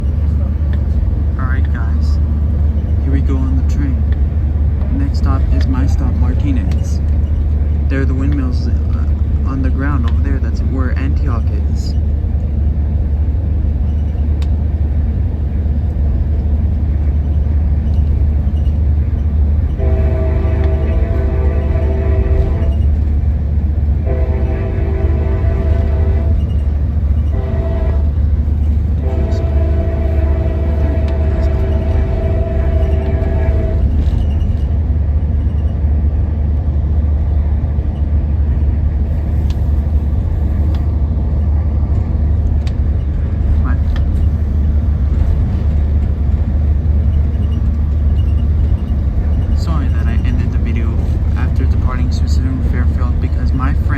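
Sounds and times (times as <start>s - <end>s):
train rumble inside coach: 0.0s - 53.9s
train horn: 19.8s - 22.8s, 24.0s - 26.5s, 27.2s - 28.2s, 29.0s - 34.1s.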